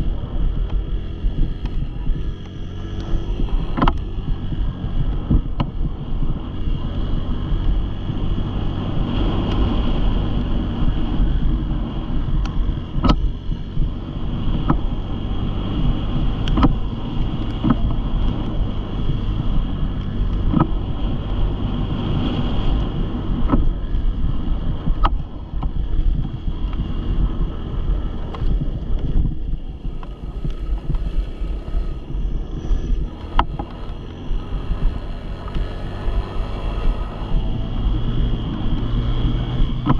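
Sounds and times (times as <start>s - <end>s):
dirt bike engine running: 0.0s - 39.9s
wind buffeting microphone: 0.0s - 39.9s
sharp clicks: 2.4s - 4.1s.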